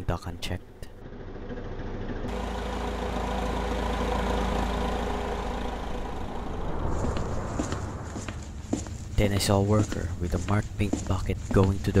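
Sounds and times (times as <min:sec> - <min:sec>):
truck engine idling: 0:01.0 - 0:09.1.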